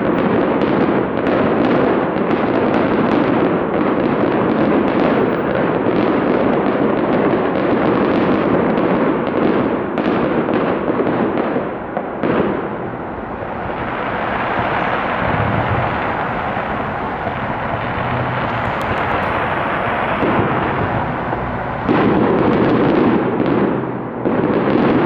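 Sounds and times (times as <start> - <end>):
fireworks bursts and crackles: 0.0 - 25.0
steady rushing noise: 11.7 - 22.8.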